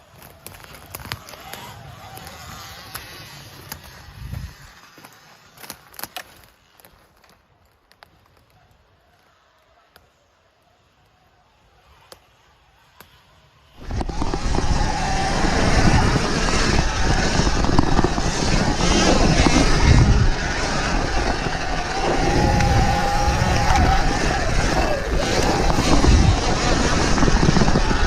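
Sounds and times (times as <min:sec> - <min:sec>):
electric motor whine: 0:13.7 - 0:28.0
dirt bike rumbling over trail: 0:13.8 - 0:28.0.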